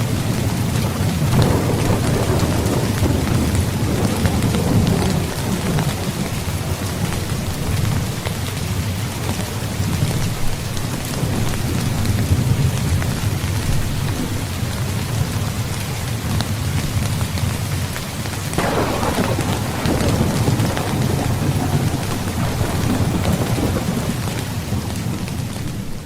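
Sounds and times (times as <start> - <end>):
rolling thunder: 0.0 - 8.8, 18.6 - 26.0
heavy rain falling: 0.0 - 26.0.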